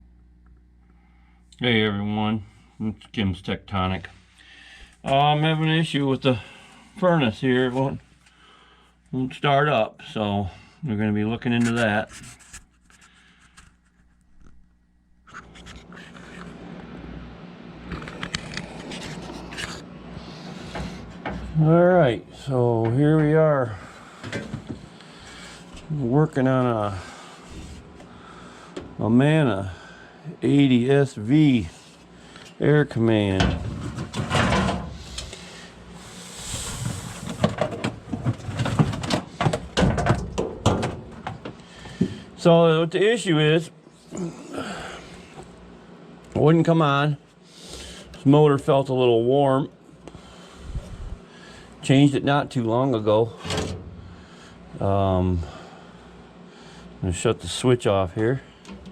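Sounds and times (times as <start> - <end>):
rustling and scraping: 11.5 - 14.6, 15.3 - 16.6, 17.8 - 21.6, 27.0 - 28.1, 33.3 - 42.3
hands clicking and knocking on furnace: 37.3 - 42.2.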